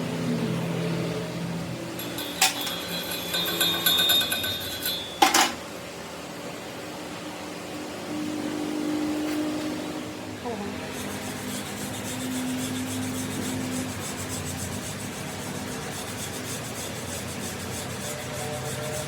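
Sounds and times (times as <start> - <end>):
low machine hum: 0.0 - 19.0
sharp metal knocks: 2.0 - 5.6
high metallic ringing: 2.0 - 5.7.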